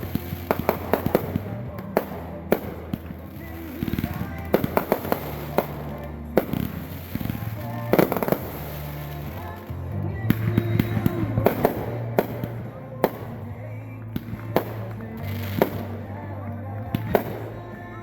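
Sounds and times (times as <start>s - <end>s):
fireworks bangs and pops: 0.0s - 18.0s
fireworks crackling: 0.0s - 18.0s.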